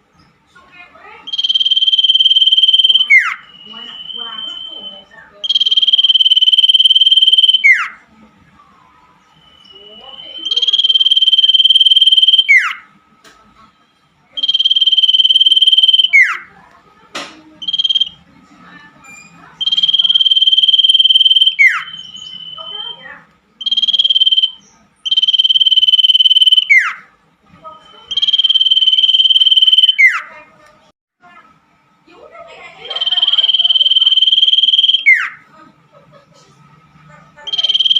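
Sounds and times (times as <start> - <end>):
bird whistled song: 1.3 - 8.0, 8.6 - 12.9, 14.4 - 16.5, 17.6 - 18.2, 19.1 - 27.1, 27.8 - 30.4, 32.9 - 35.4, 37.5 - 37.9.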